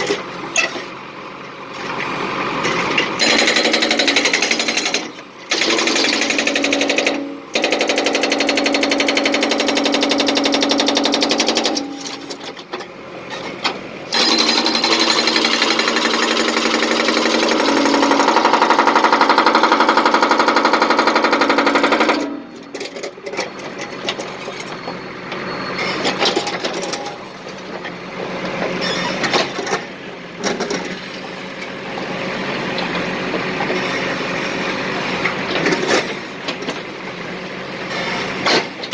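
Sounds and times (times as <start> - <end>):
demolition hammer breaking concrete: 3.1 - 12.7, 14.1 - 23.0.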